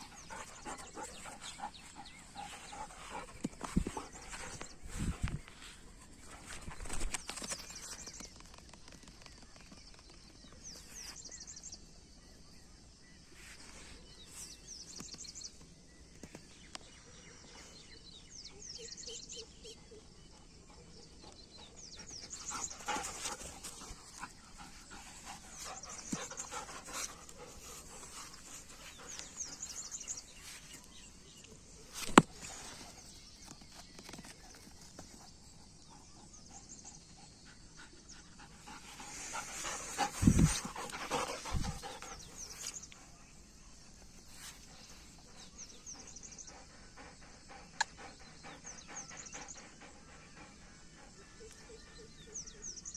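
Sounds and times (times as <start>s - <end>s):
dog panting: 0.0s - 5.2s, 21.5s - 30.9s, 36.0s - 43.3s, 45.2s - 52.2s
small birds chirping: 0.0s - 52.9s.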